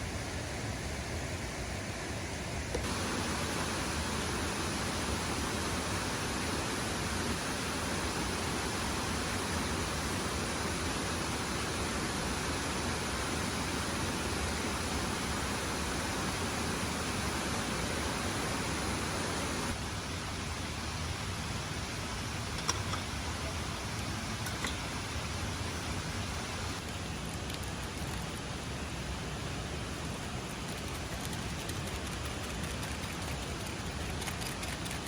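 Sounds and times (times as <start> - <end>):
waterfall rushing: 2.9 - 19.8.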